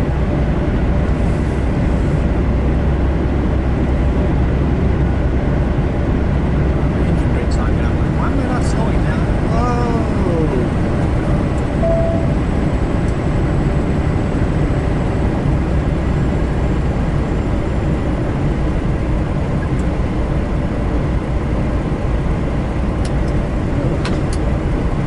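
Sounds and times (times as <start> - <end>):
truck engine and road noise: 0.0 - 25.0
short tone: 11.8 - 12.6.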